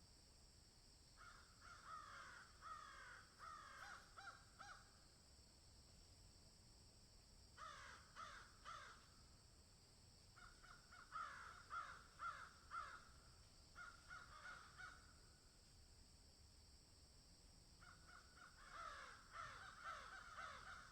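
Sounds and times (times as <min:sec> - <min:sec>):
high background hiss: 0:00.0 - 0:20.9
faint bird calls: 0:01.2 - 0:05.0, 0:07.6 - 0:09.2, 0:10.3 - 0:15.2, 0:17.8 - 0:20.9.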